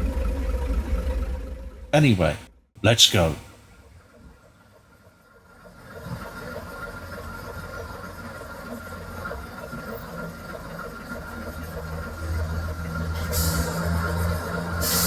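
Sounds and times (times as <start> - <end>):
diesel train engine rumbling: 3.6 - 15.0.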